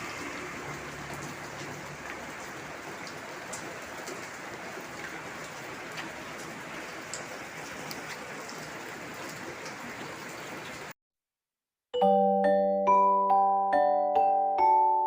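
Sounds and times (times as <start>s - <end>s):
steady rain falling: 0.0s - 10.9s
chiming mallet music: 12.0s - 15.0s.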